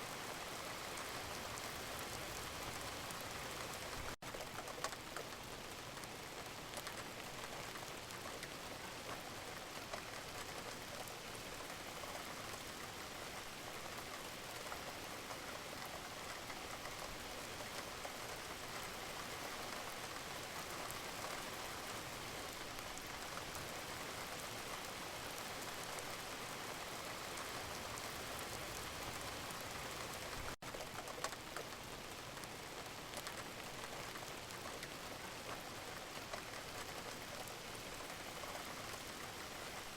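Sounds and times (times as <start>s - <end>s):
steady rain hiss: 0.0s - 39.9s
raindrop ticks: 0.7s - 39.9s.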